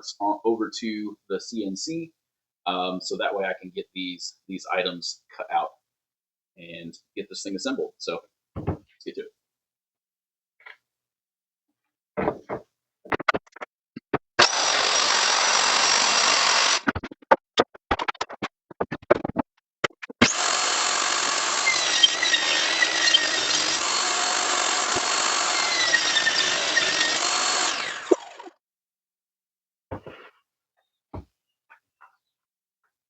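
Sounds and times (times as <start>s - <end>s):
knocks and clicks handling wood: 8.6s - 8.9s, 29.9s - 30.3s
electric saw cutting wood: 14.4s - 16.9s, 20.2s - 28.6s.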